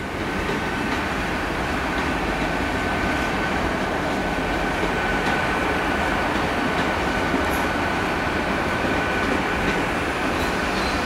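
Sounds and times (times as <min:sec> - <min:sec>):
train rumbling past: 0:00.0 - 0:11.0.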